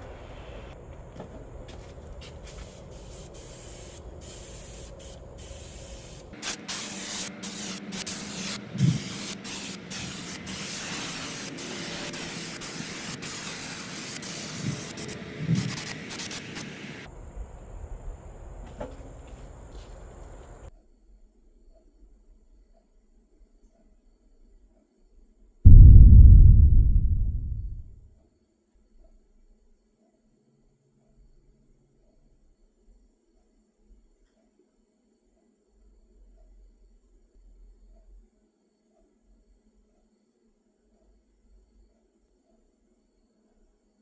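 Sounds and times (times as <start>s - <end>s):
paint spraying onto metal: 2.3s - 17.1s.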